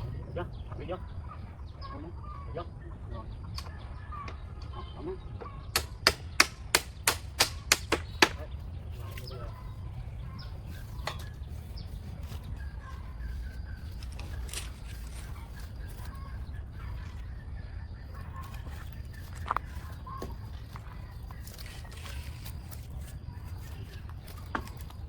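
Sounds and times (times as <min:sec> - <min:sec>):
tool knocking: 0:05.8 - 0:08.4.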